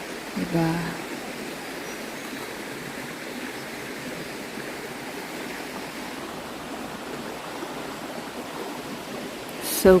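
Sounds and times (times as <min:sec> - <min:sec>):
stream rushing: 0:00.0 - 0:10.0.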